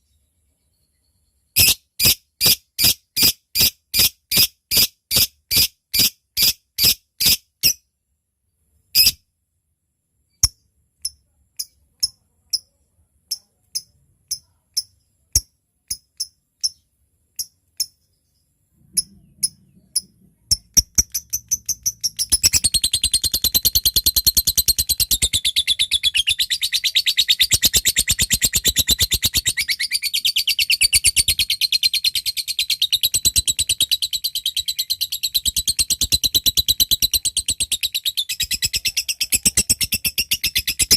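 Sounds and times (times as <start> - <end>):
lovebird chattering trill: 19.0 - 40.9.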